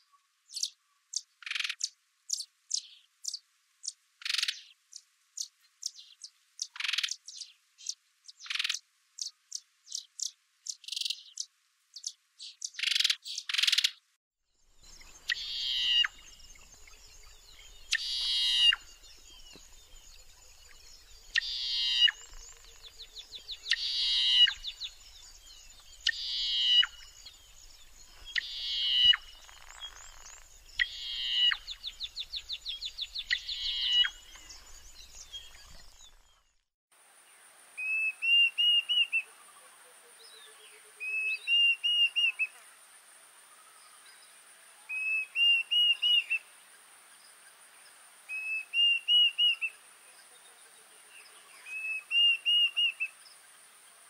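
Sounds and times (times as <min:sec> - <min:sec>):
bird giving harsh pulsing calls: 0:15.2 - 0:16.3, 0:17.8 - 0:18.9, 0:21.3 - 0:22.9, 0:23.7 - 0:25.1, 0:26.0 - 0:27.1, 0:28.2 - 0:31.9, 0:33.2 - 0:34.3.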